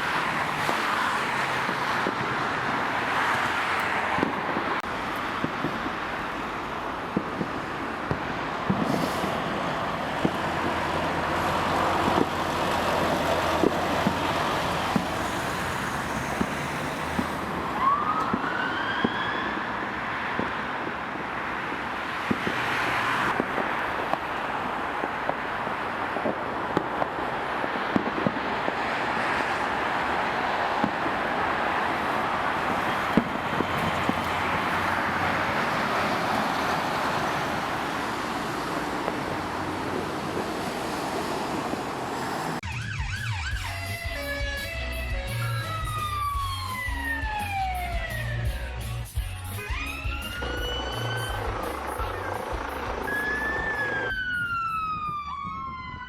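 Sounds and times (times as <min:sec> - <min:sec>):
fire engine siren: 0:00.0 - 0:48.8, 0:49.5 - 0:56.0
road and wind noise: 0:00.0 - 0:56.0
rising whistle: 0:53.0 - 0:55.0.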